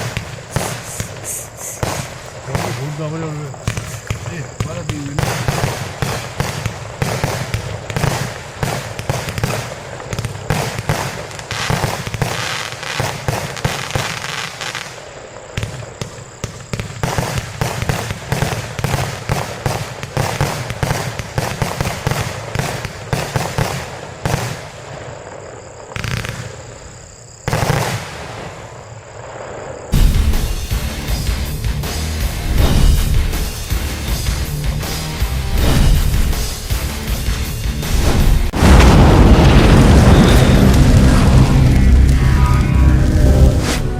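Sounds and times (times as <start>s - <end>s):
firework cake launches and bursts: 0.0s - 25.2s, 32.4s - 34.2s, 34.9s - 36.9s, 37.8s - 42.2s.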